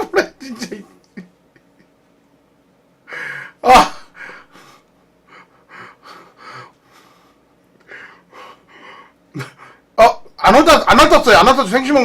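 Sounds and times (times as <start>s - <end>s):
man breathing and gasping: 3.0s - 9.9s.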